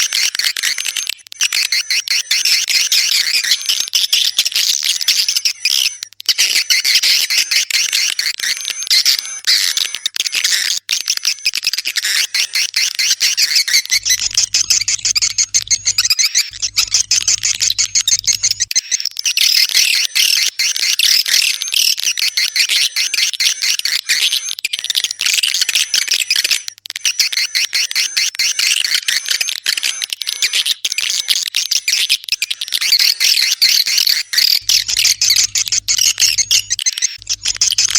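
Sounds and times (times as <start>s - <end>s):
high-pitched twittering bird chirps: 12.4s - 19.4s, 32.4s - 37.9s.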